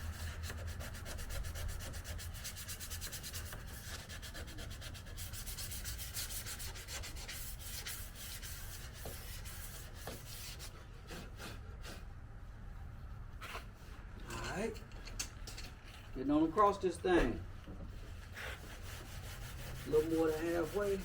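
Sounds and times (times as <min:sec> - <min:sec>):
sandpaper strokes on metal panel: 0:00.0 - 0:12.0, 0:18.2 - 0:21.0.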